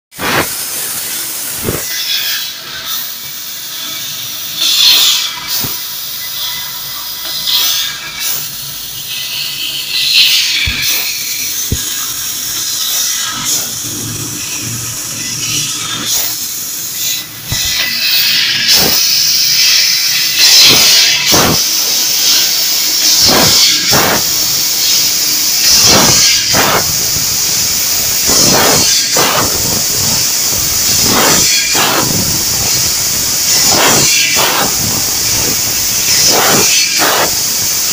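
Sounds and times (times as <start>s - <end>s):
hiss of cutting gas: 0.2s - 37.9s
whooshing surges: 25.7s - 37.9s.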